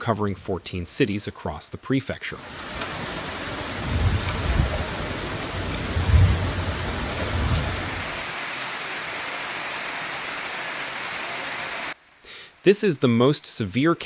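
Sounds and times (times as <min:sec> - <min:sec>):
heavy rain hissing: 0:02.4 - 0:14.0
low uneven rumbling: 0:02.6 - 0:08.2.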